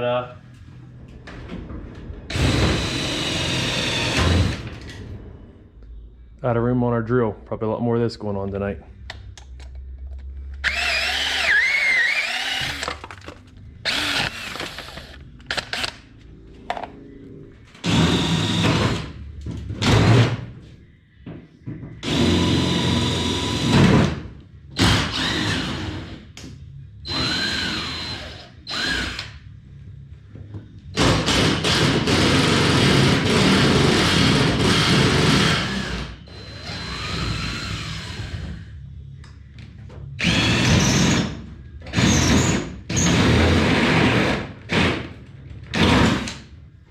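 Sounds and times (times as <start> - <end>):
cordless drill running: 10.6 - 13.0, 13.8 - 15.2, 17.8 - 18.9, 27.1 - 29.2.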